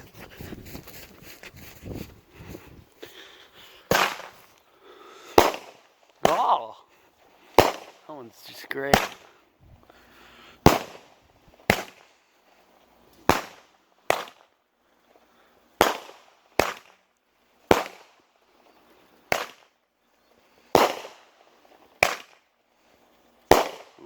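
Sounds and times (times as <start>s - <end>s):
firework bangs: 3.9s - 4.6s, 5.3s - 6.8s, 7.5s - 9.4s, 10.6s - 12.1s, 13.2s - 14.4s, 15.8s - 17.0s, 17.7s - 18.2s, 19.3s - 19.7s, 20.7s - 22.4s, 23.5s - 24.0s.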